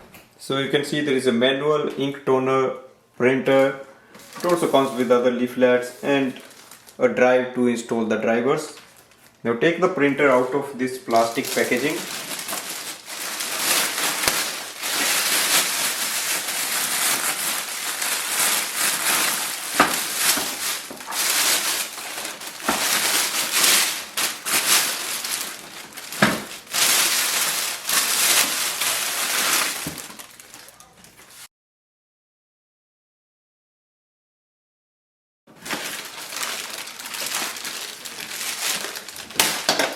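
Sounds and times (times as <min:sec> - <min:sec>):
plastic bag crinkling: 0:04.1 - 0:05.2, 0:05.9 - 0:07.0, 0:08.7 - 0:09.5, 0:10.2 - 0:31.5, 0:35.5 - 0:39.9.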